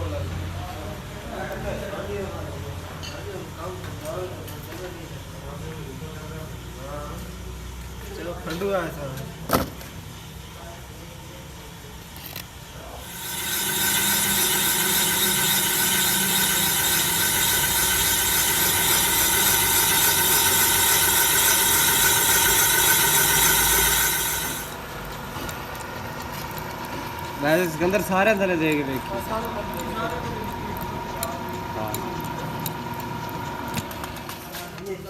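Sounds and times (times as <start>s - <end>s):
machine hiss with whine: 13.0s - 24.8s.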